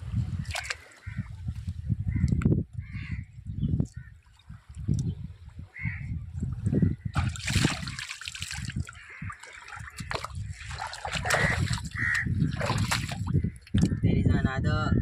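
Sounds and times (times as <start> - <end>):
sea water splashing and trickling: 0.3 - 1.1, 3.9 - 13.9.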